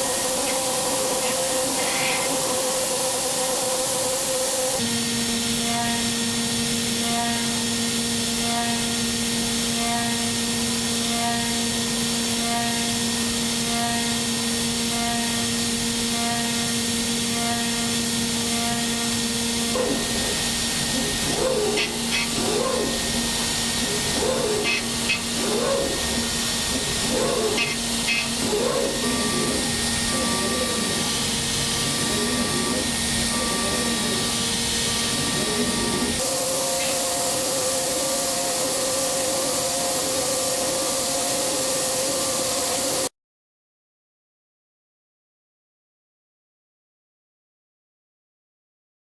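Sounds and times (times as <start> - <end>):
milling machine spindle hum: 0.0 - 43.1
rhythmic warbling: 19.7 - 36.2
cutting hiss: 19.7 - 43.0.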